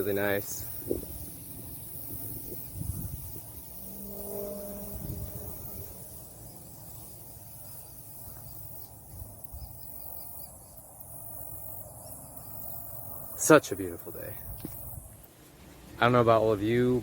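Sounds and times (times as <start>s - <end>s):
wind buffeting microphone: 0.0s - 10.5s
insects droning: 0.0s - 17.0s
brief low hum: 2.8s - 7.1s.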